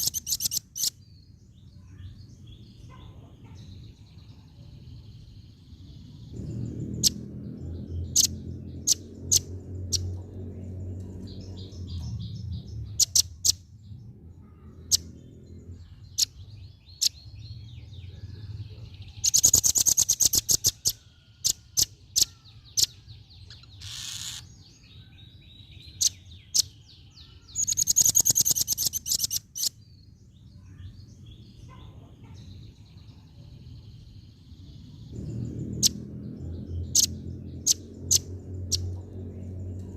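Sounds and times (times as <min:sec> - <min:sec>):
bird rattling trills: 0:00.0 - 0:00.9, 0:27.6 - 0:29.7
bird high chirps: 0:00.0 - 0:39.9
low rumble: 0:05.9 - 0:16.5, 0:33.5 - 0:39.9.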